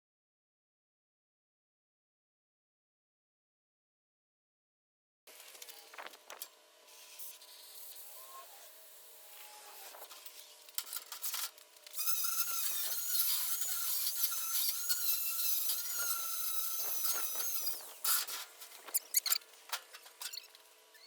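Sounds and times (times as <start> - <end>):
power tool whining: 11.9 - 19.4.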